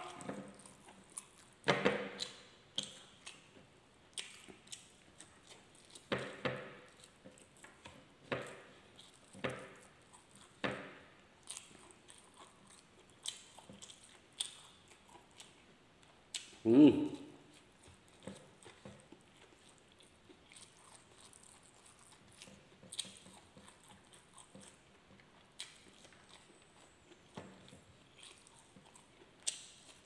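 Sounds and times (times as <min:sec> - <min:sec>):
person chewing with wet smacks: 0:00.0 - 0:30.0.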